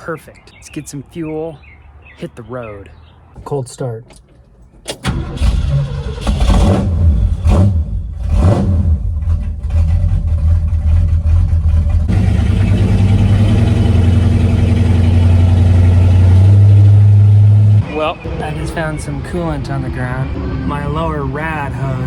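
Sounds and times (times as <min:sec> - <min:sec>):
truck engine starting and revving: 0:04.9 - 0:22.0.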